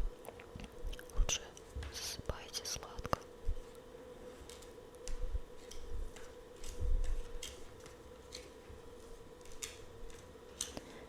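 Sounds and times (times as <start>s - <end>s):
cards clicking and tapping: 4.4s - 8.6s, 9.4s - 11.0s.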